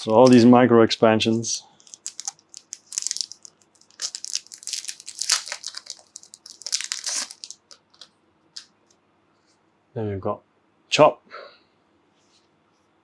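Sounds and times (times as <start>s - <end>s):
plastic wrapping crinkling and tearing: 0.0s - 0.6s, 1.2s - 8.1s.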